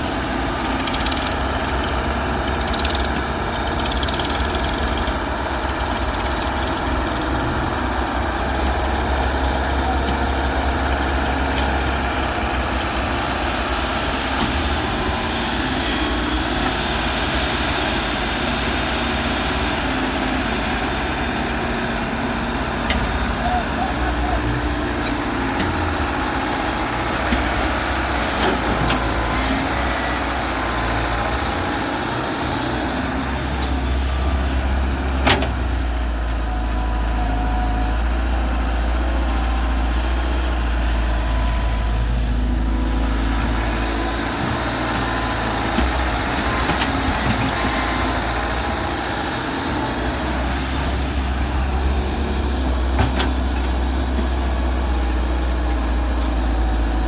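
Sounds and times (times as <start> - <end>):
excavator diesel engine: 0.0 - 57.0.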